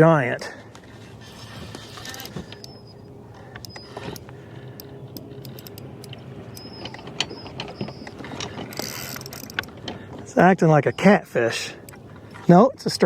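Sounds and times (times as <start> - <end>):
steady low hum: 0.0 - 13.0
fishing reel clicking: 1.8 - 3.0, 3.6 - 9.7.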